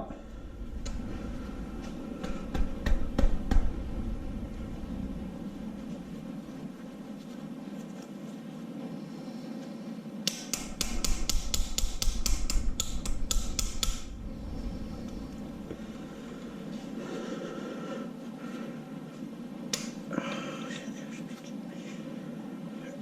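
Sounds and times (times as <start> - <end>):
hammer rapping on metal: 10.3 - 14.1.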